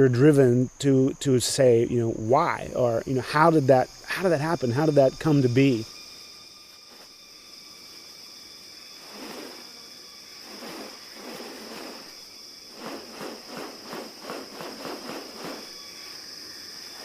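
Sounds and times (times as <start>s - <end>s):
rainforest insects droning: 0.0s - 17.0s
rustling swishing bursts: 9.0s - 9.8s, 10.4s - 15.8s.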